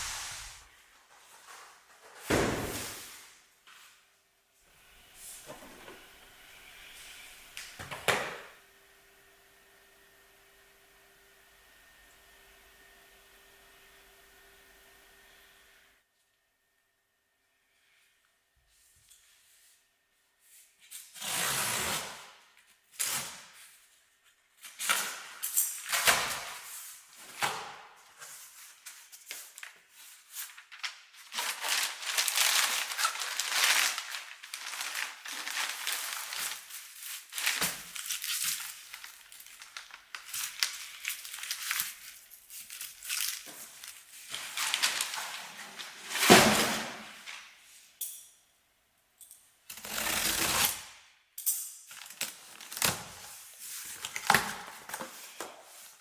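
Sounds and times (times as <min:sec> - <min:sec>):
paper packaging rustling: 0:28.1 - 0:47.4, 0:51.9 - 0:56.0.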